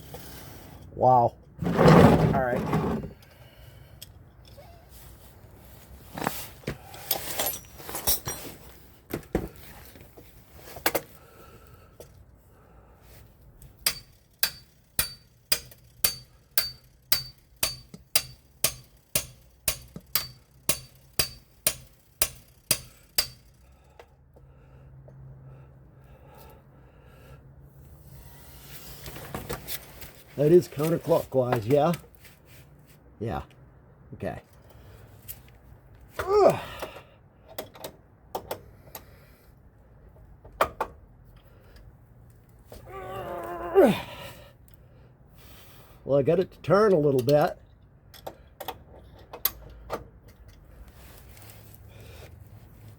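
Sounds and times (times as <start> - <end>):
metal tool clicking: 13.9 - 23.4
man grunting: 36.2 - 36.8, 42.9 - 44.3.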